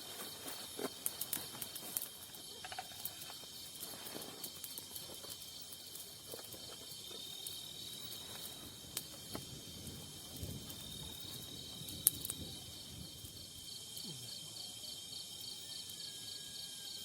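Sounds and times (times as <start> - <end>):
night insects trilling: 0.0 - 17.0.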